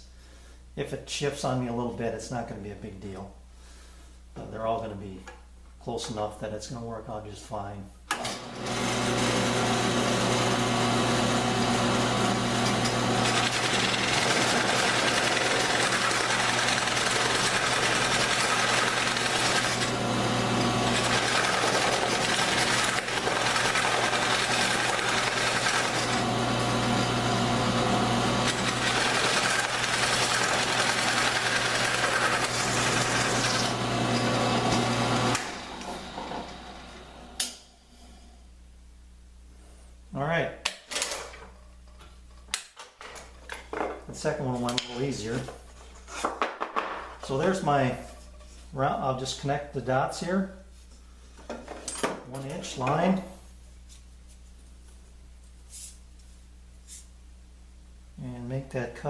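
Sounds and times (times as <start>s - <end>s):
drill press boring wood: 8.1s - 37.5s.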